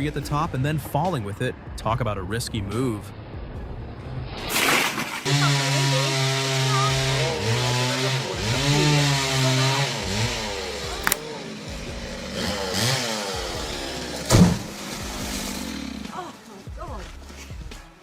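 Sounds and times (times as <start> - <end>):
chainsaw engine revving: 5.5 - 11.2, 12.2 - 14.3.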